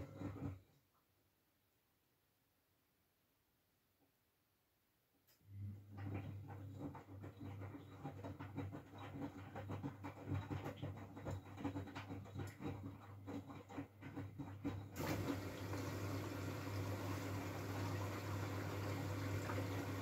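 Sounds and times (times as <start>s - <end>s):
washing machine drum knocking: 7.2s - 20.0s
water rushing into machine: 15.0s - 20.0s.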